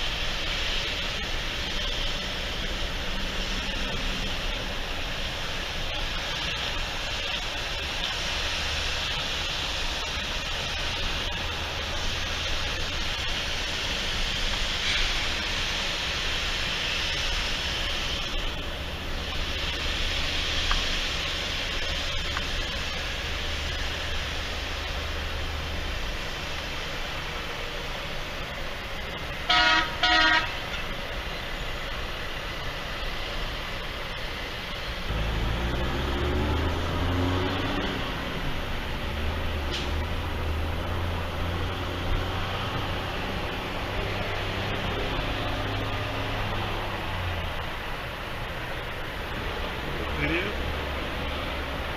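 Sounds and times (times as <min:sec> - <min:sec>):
vehicle horn blasts: 0:29.5 - 0:30.6.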